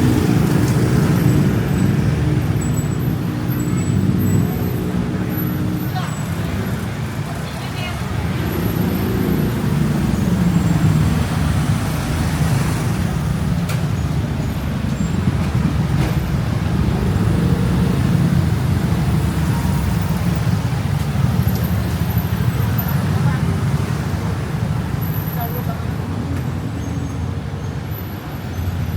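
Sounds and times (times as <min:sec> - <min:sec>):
city street traffic rumble: 0:00.0 - 0:28.9.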